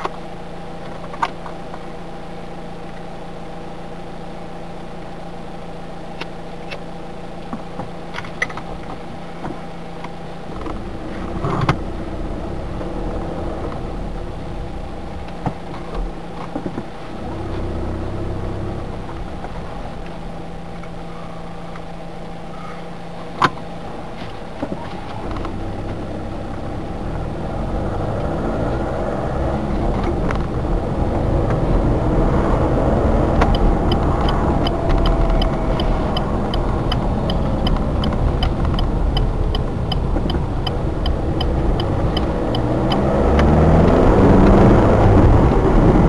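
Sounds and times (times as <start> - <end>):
car engine idling: 0.0 - 46.0
deep low rumble: 10.5 - 21.8, 24.7 - 46.0.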